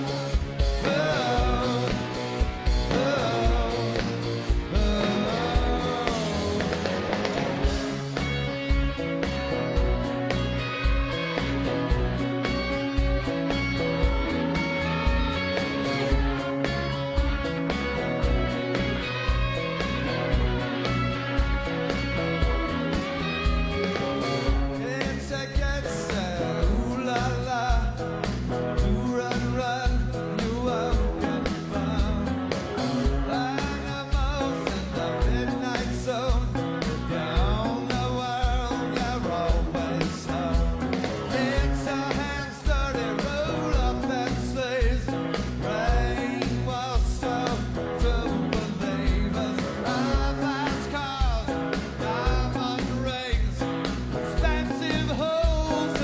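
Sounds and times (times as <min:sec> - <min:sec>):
person singing: 0:00.0 - 0:09.0, 0:28.7 - 0:56.0
drum beat: 0:00.0 - 0:29.2, 0:29.9 - 0:56.0
electric guitars: 0:00.0 - 0:56.0.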